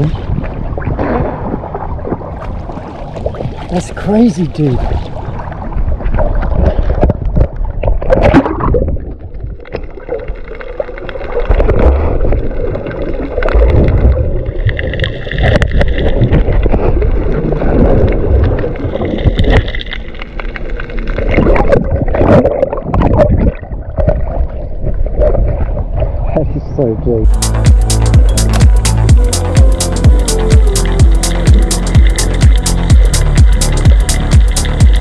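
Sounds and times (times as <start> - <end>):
water sloshing and gurgling: 0.0 - 26.4, 27.2 - 35.0
steady low rumble: 27.2 - 35.0.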